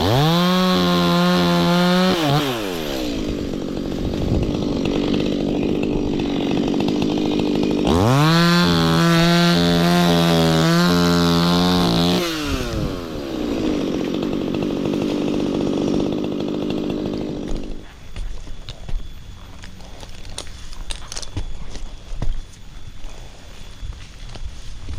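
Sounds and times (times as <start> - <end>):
chainsaw idling and revving: 0.0 - 18.2.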